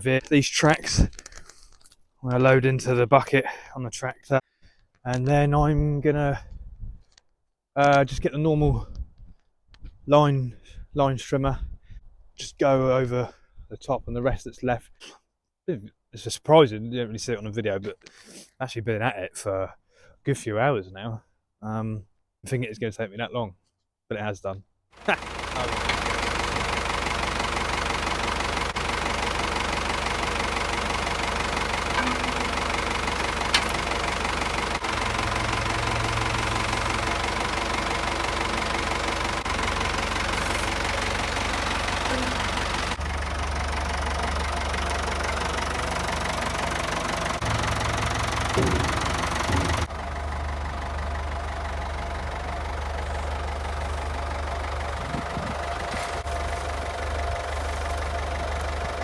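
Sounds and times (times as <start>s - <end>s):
tractor diesel engine running: 25.0s - 59.0s.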